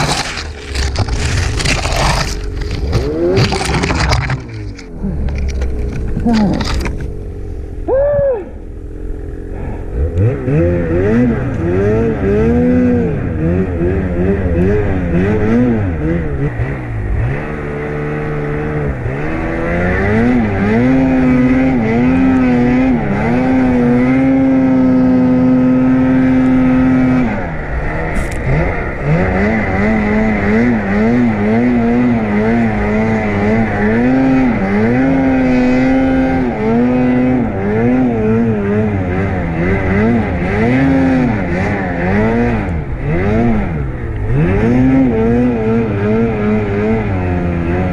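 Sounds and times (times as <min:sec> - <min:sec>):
snowmobile engine revving: 0:00.0 - 0:47.9.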